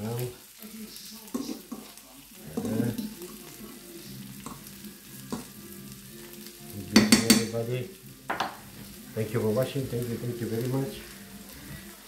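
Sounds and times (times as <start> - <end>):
food sizzling in frying pans: 0.0 - 12.0
utensil clicking against pan: 7.0 - 7.6.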